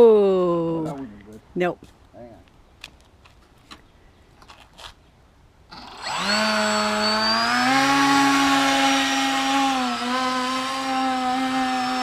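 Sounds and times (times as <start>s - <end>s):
electric motor and propeller whine: 5.7s - 12.0s.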